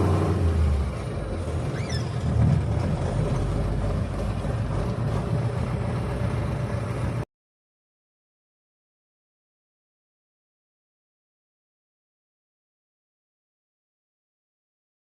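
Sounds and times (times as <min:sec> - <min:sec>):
truck diesel engine rumbling: 0:00.0 - 0:07.3.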